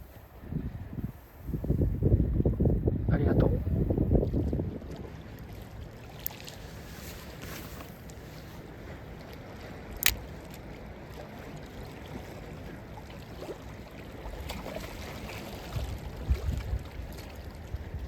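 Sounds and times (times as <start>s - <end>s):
wind rumble on microphone: 0.0s - 6.0s, 14.2s - 18.0s
wind: 0.0s - 18.0s
water lapping: 4.1s - 18.0s
sharp click: 10.0s - 10.2s.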